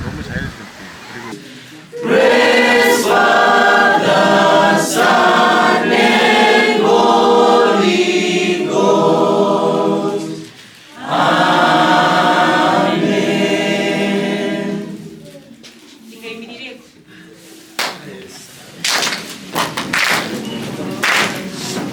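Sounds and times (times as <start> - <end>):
group singing worship song: 0.2 - 15.4.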